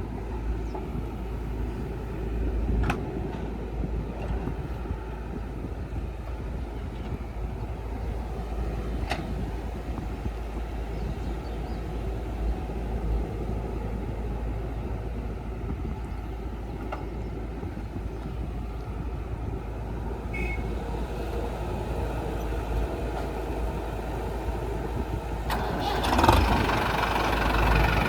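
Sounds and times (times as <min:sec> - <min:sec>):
heavy machinery diesel engines: 0:00.0 - 0:28.0.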